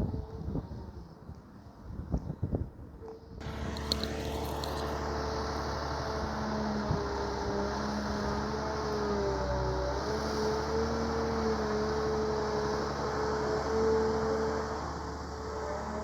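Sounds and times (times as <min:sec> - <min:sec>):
diesel engine running under load: 0:03.4 - 0:16.0.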